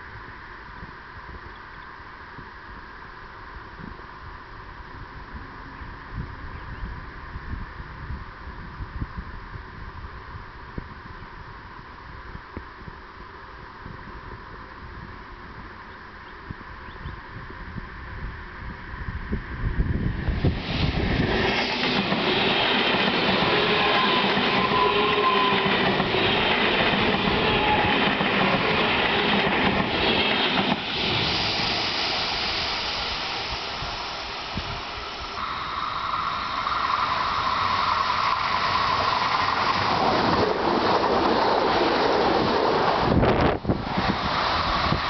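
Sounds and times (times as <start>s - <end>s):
high-speed train rushing past: 16.6s - 45.0s
rail clatter: 20.5s - 32.7s, 37.2s - 45.0s
faint whine: 31.2s - 42.1s.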